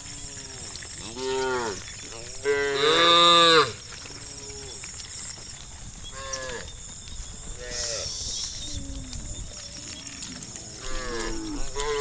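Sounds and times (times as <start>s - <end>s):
cows mooing: 0.0s - 4.8s, 6.1s - 6.7s, 7.5s - 8.8s, 9.9s - 12.0s.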